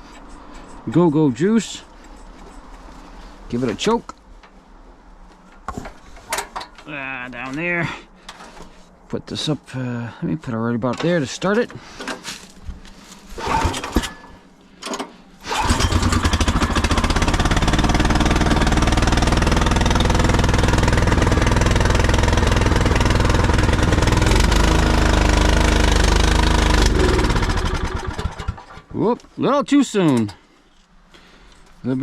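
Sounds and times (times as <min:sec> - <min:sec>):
snowblower engine starting and running: 0:13.4 - 0:14.2, 0:15.4 - 0:29.1.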